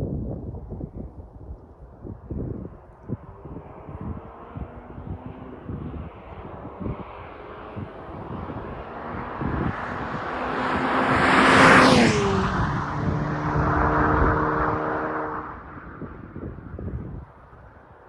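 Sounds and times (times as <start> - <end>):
car exhaust driving past: 3.2 - 16.8.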